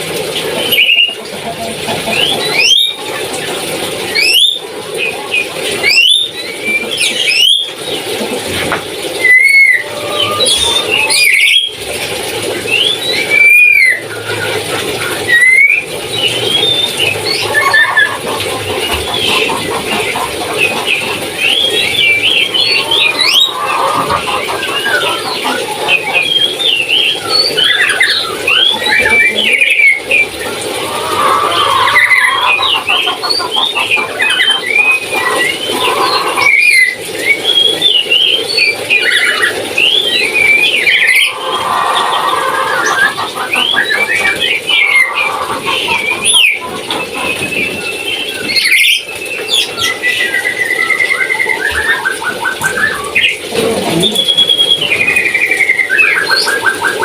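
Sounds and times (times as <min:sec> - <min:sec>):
parrot squealing and chirping: 0:09.2 - 0:11.7, 0:16.5 - 0:30.2, 0:30.8 - 0:37.0, 0:40.6 - 0:47.3.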